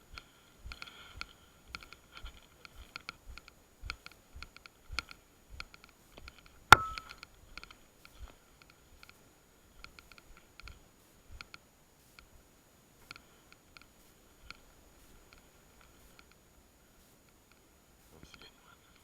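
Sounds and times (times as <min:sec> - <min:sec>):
walking footsteps: 0:00.0 - 0:12.4
sharp crack with ring: 0:06.7 - 0:07.3.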